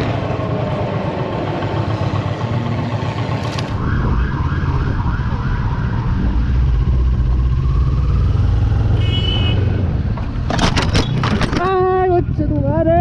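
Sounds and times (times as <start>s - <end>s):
motorcycle engine and wind rumble: 0.0s - 13.0s
siren yelping: 3.7s - 8.6s.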